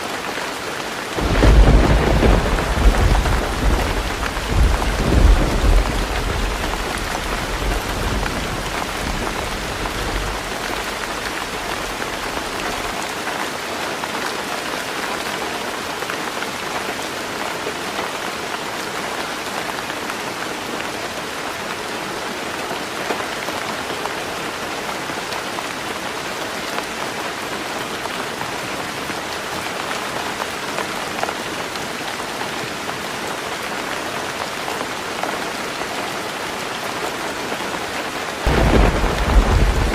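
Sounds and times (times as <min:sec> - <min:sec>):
heavy rain on a tin roof: 0:00.0 - 0:39.9
thunder rumble: 0:01.2 - 0:12.9, 0:38.5 - 0:39.9.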